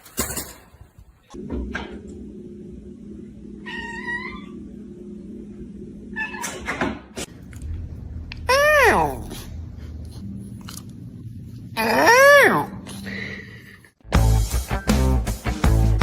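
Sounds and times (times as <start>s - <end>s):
steady low hum: 1.2s - 6.3s, 7.0s - 14.0s.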